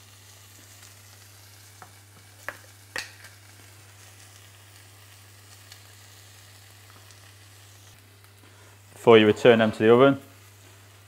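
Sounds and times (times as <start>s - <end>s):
chicken sizzling on a griddle: 0.0s - 11.0s.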